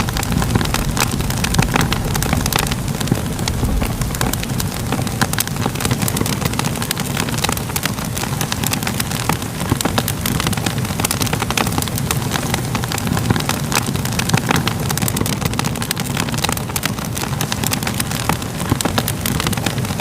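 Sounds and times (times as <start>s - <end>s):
low continuous rumble: 0.0s - 15.1s
wood fire crackling and popping: 0.0s - 20.0s.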